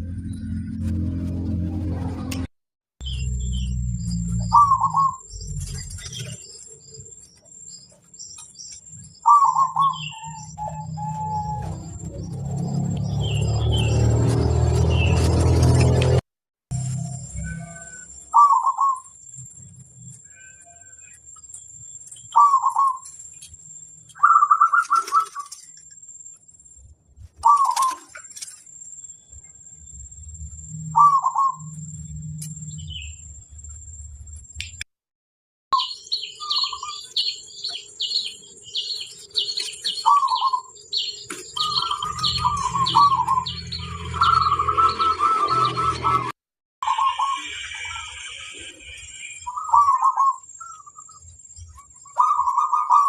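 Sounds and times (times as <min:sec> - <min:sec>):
low rumble: 0:00.0 - 0:02.5
faint high bird chirps: 0:03.0 - 0:15.3, 0:16.7 - 0:34.0, 0:35.7 - 0:53.0
dove cooing: 0:36.4 - 0:43.6, 0:52.1 - 0:53.0.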